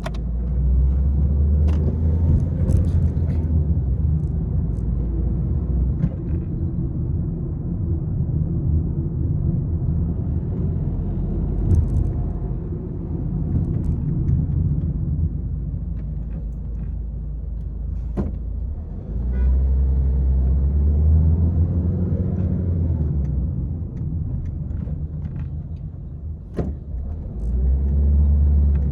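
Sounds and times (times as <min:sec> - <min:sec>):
car engine and road rumble: 0:00.0 - 0:28.9
knocks and rattles: 0:01.6 - 0:03.5.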